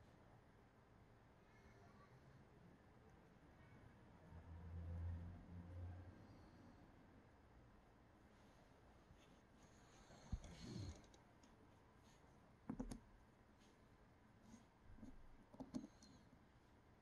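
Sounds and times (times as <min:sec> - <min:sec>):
clicks and taps of small parts: 0:12.7 - 0:13.0.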